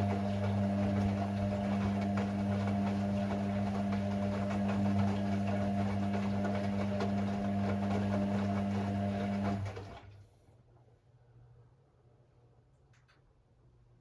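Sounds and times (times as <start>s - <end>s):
washing machine humming: 0.0s - 10.4s.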